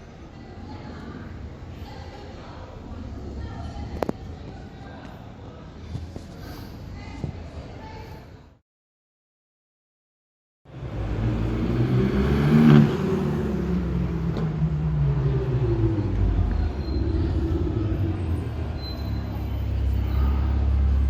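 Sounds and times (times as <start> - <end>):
car engine deep rumble: 10.7 - 21.0.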